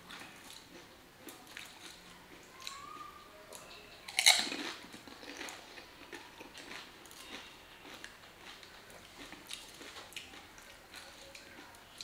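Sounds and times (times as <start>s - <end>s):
person chewing crunchy food: 4.1s - 12.0s.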